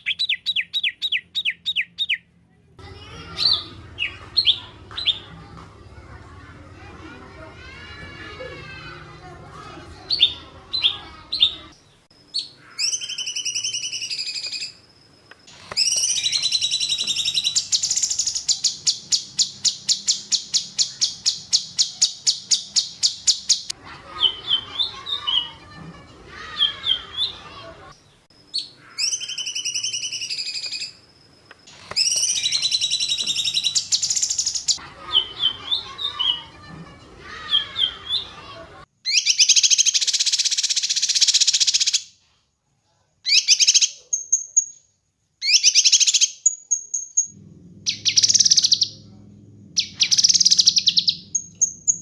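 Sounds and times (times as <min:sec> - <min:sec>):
rapid bird trill: 0:02.8 - 0:08.0, 0:08.6 - 0:11.8, 0:15.8 - 0:27.7, 0:32.0 - 0:42.0, 0:45.5 - 0:49.1, 0:49.8 - 0:52.0
songbird chirps and whistles: 0:03.0 - 0:06.0, 0:10.1 - 0:14.8, 0:15.7 - 0:25.6, 0:31.9 - 0:36.6, 0:37.2 - 0:42.0.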